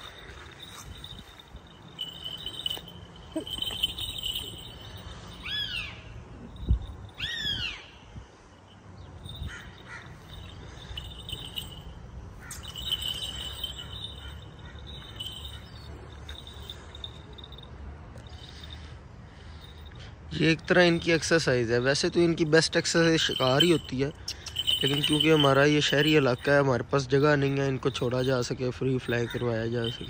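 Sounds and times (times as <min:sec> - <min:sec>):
high trilling: 0:00.0 - 0:06.1.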